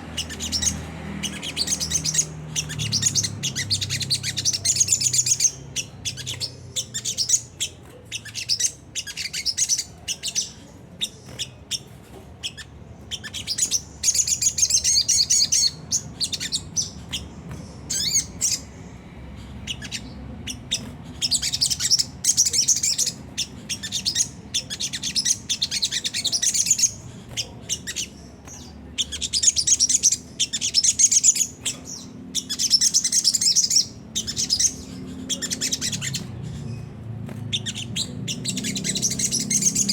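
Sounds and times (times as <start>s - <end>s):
bird chattering call: 37.5s - 39.9s.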